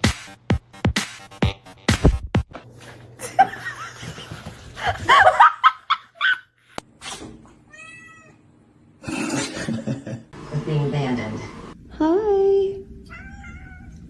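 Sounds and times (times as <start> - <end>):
person laughing: 3.2 - 6.4, 9.0 - 10.3.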